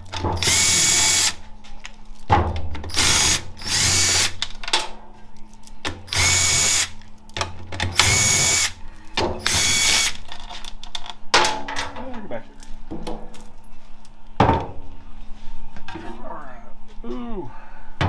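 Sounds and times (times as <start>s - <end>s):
power tool whirring: 0.4s - 1.4s, 2.9s - 4.4s, 6.1s - 7.0s, 7.9s - 8.8s, 9.4s - 10.2s.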